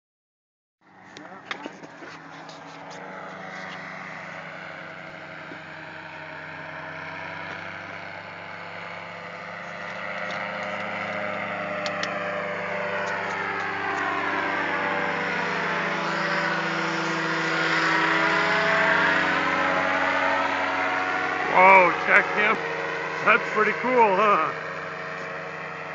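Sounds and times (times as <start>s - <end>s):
low engine hum: 0.8s - 25.9s
low-flying aircraft flyby: 0.8s - 25.9s.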